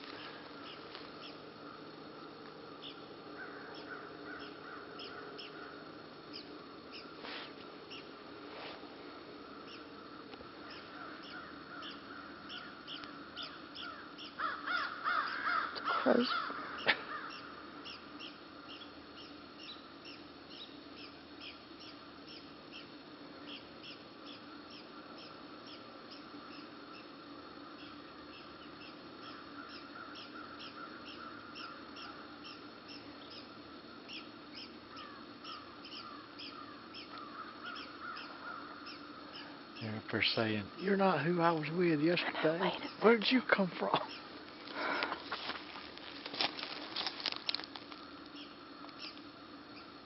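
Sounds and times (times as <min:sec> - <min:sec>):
faint high bird chirping: 0:00.0 - 0:01.4, 0:02.7 - 0:07.2, 0:07.9 - 0:08.1, 0:09.6 - 0:09.9, 0:10.6 - 0:27.1, 0:27.8 - 0:40.0, 0:48.4 - 0:50.0
crows cawing: 0:00.0 - 0:07.1, 0:09.4 - 0:18.8, 0:28.8 - 0:32.6, 0:34.9 - 0:39.8
woodpeckers chipping: 0:09.5 - 0:27.1, 0:27.7 - 0:49.9.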